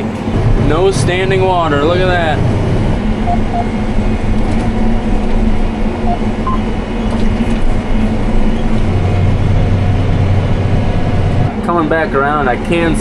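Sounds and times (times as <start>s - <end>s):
hay-cutting machine drone: 0.0s - 13.0s
short faint beeps: 6.0s - 6.7s.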